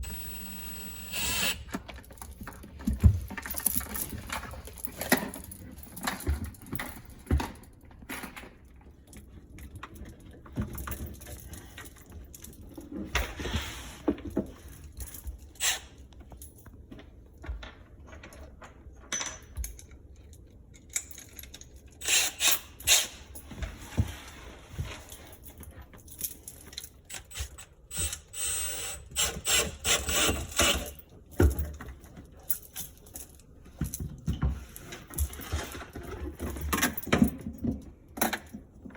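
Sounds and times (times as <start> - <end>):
tools knocking and clicking: 26.6 - 35.4.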